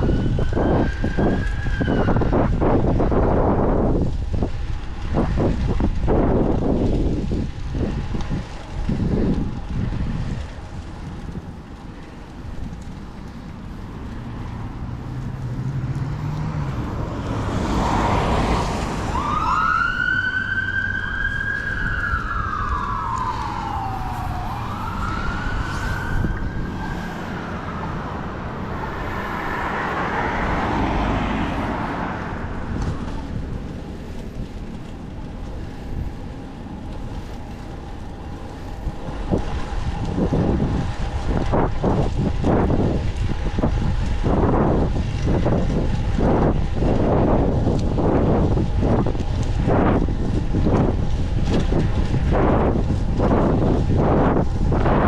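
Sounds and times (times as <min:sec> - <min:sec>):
emergency vehicle siren wailing: 0:00.0 - 0:55.0
road traffic rumble: 0:00.0 - 0:55.0
wind on microphone: 0:00.0 - 0:55.0.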